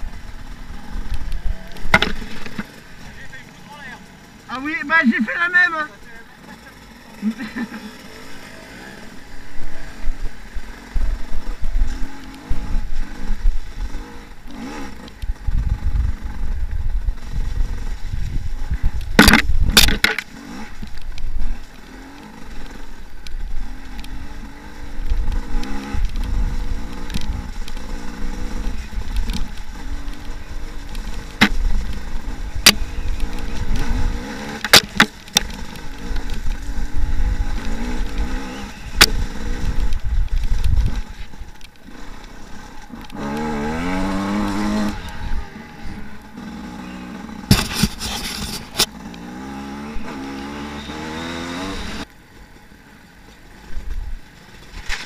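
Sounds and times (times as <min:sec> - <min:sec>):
dirt bike engine revving: 0:00.0 - 0:52.1
heavy low rumble: 0:35.6 - 0:48.8.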